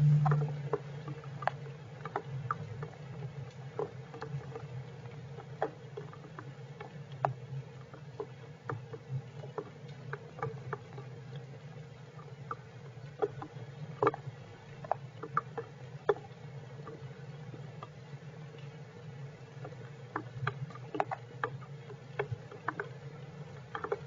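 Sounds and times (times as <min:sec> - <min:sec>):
steady low hum: 0:00.0 - 0:01.2.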